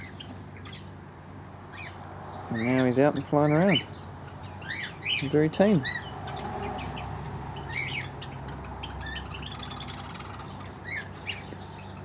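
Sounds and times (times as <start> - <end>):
birds chirping: 0.0 - 12.0
faint bird twittering: 0.0 - 12.0.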